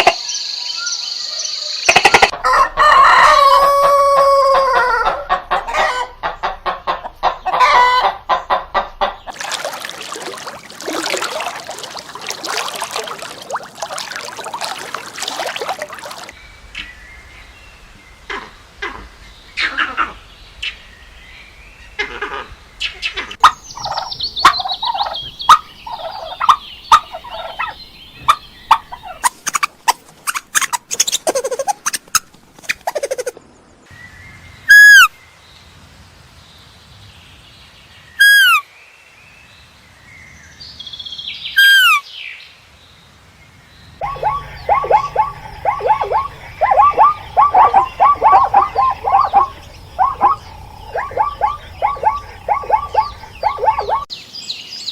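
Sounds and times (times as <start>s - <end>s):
loud falling turkey calls: 1.9s - 9.3s, 23.4s - 29.7s, 44.0s - 54.1s
turkeys gobbling: 1.9s - 9.3s, 23.4s - 32.2s, 44.0s - 54.1s
turkey clicks: 23.4s - 33.3s, 44.0s - 54.1s.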